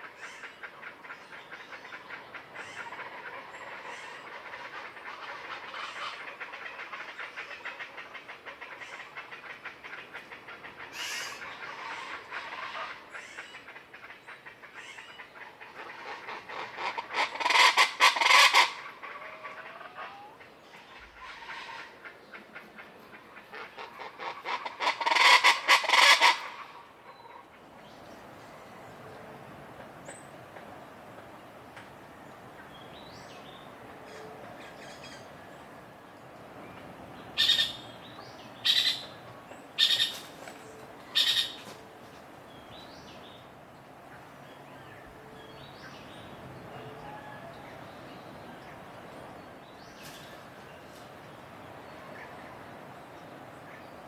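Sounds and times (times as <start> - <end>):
chachalacas calling in chorus: 15.9 - 22.0, 23.5 - 26.8, 37.3 - 39.2, 39.8 - 40.3, 41.1 - 41.6.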